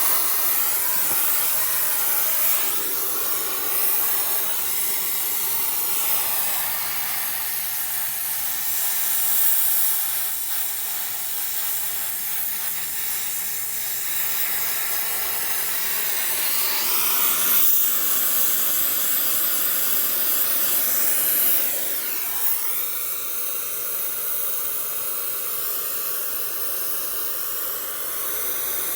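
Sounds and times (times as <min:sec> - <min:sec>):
loud steady hiss: 0:00.0 - 0:28.9.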